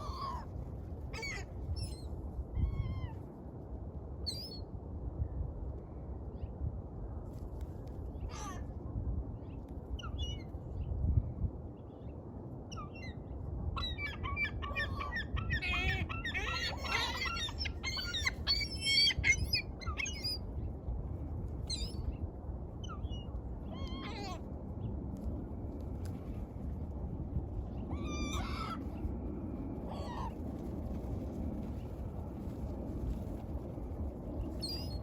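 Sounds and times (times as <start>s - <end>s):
steady low rumble: 13.2s - 35.0s.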